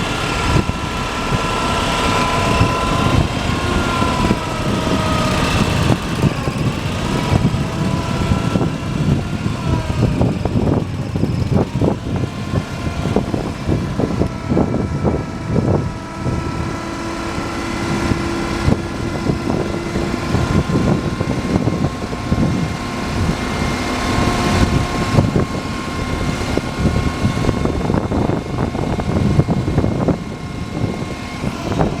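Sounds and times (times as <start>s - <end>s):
truck engine running: 0.0s - 32.0s
whining tones: 0.0s - 32.0s.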